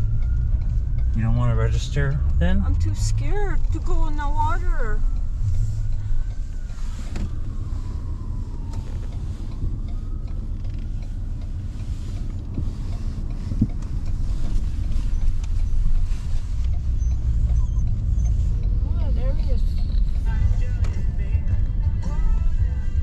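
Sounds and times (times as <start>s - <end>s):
motor vehicle rumbling: 0.0s - 23.0s.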